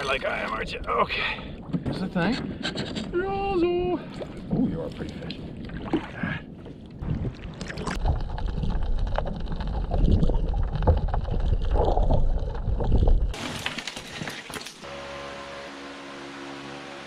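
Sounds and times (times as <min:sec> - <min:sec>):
wind rumbling on microphone: 0:00.6 - 0:13.4.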